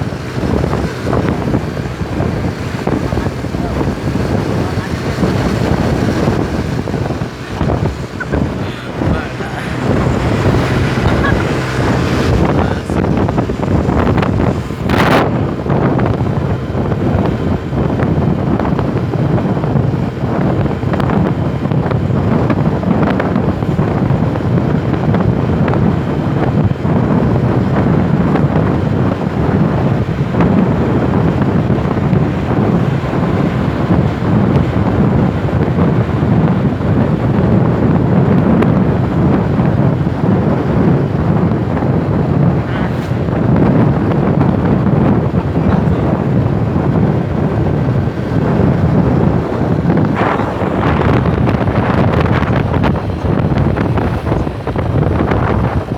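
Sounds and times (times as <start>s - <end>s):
passing trucks road noise: 0.0s - 26.4s, 27.2s - 55.9s
wind rumbling on microphone: 0.0s - 55.9s.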